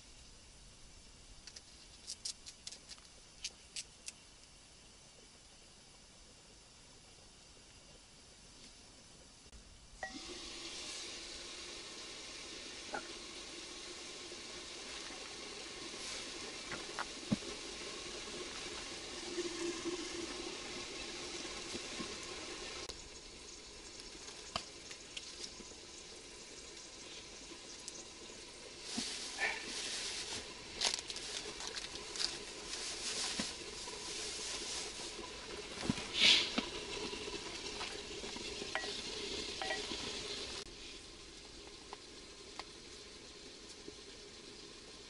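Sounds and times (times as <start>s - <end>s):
food sizzling: 10.0s - 45.0s.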